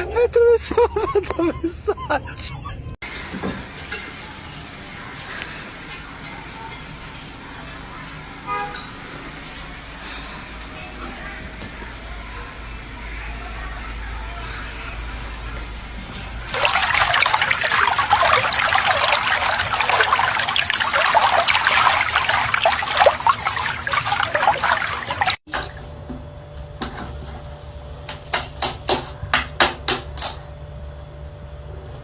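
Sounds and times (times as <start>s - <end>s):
water rushing and splashing: 16.5s - 25.4s.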